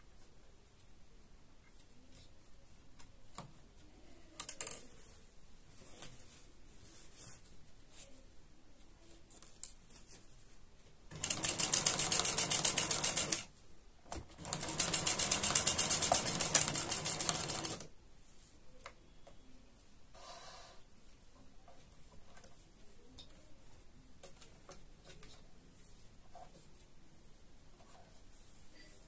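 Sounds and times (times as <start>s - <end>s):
sewing machine stitching: 11.1s - 13.5s, 14.1s - 17.9s.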